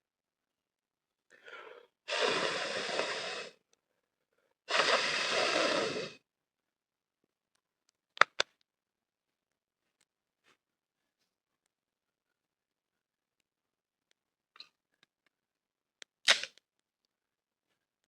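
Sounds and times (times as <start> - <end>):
person blowing on embers: 1.5 - 3.6, 4.7 - 6.2.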